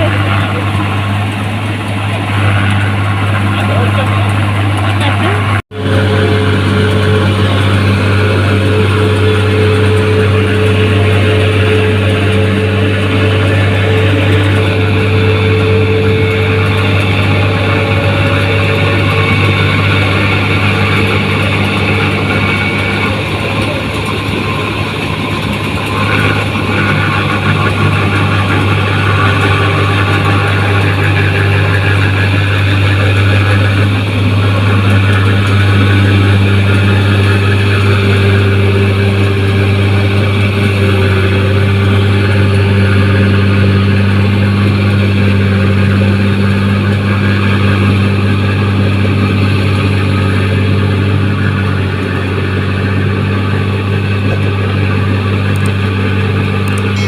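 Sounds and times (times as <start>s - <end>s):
combine harvester engine drone: 0.0s - 57.0s.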